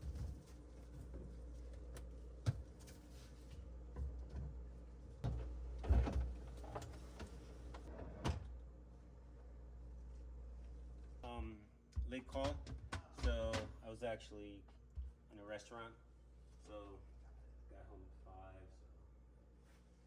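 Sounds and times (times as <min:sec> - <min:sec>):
knocks and clunks of parts: 0:05.2 - 0:08.5, 0:12.0 - 0:13.8.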